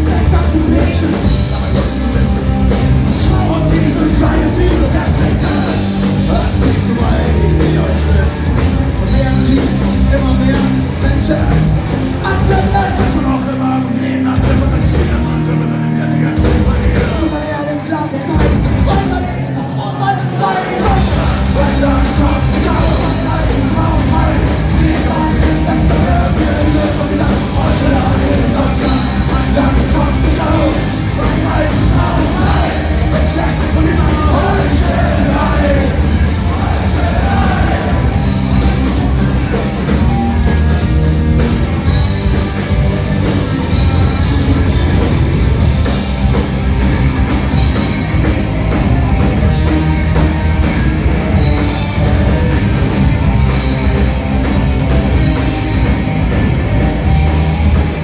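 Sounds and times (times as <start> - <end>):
shouted vocals: 0.0 - 42.0
punk rock band playing live: 0.0 - 58.0.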